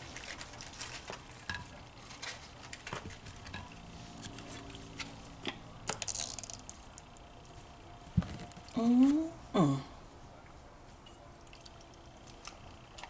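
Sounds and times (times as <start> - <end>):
takeout container clicks and rustles: 0.0 - 3.7.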